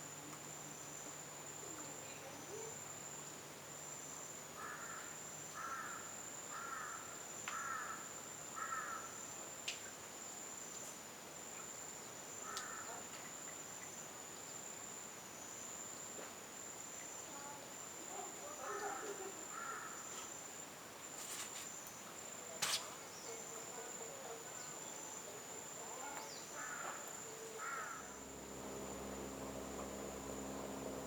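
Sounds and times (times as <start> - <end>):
insects droning: 0.0 - 31.0.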